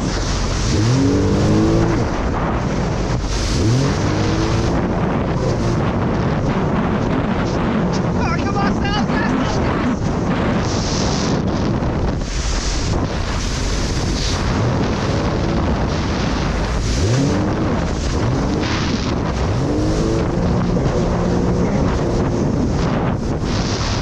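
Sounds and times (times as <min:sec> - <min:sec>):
jet ski engine running: 0:00.0 - 0:24.0
wind noise on microphone: 0:00.0 - 0:24.0.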